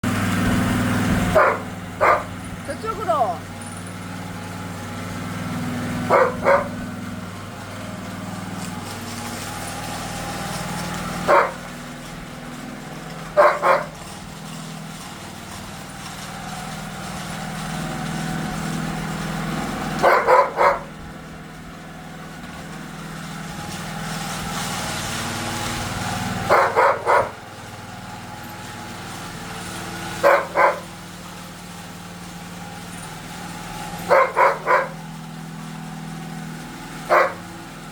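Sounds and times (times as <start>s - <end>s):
power trowel engine running: 0.0s - 37.9s
dog barking: 1.3s - 2.3s, 6.1s - 6.8s, 11.3s - 11.6s, 13.4s - 14.0s, 20.0s - 20.9s, 26.5s - 27.4s, 30.2s - 30.9s, 34.1s - 35.0s, 37.1s - 37.4s.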